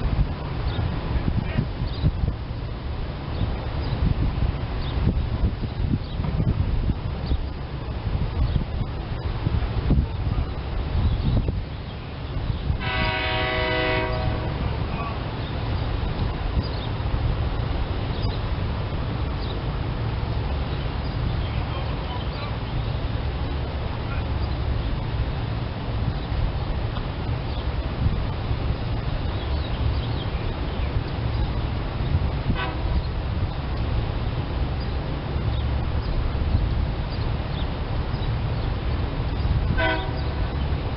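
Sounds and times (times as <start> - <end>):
steady low rumble: 0.0 - 40.9
train horn blast: 12.8 - 14.9, 32.5 - 33.0, 39.7 - 40.6.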